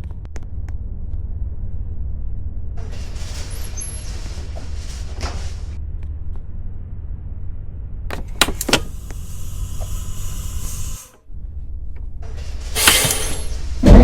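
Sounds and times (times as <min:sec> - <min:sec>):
bus engine rumble: 0:00.0 - 0:14.0
air hiss: 0:08.8 - 0:11.2.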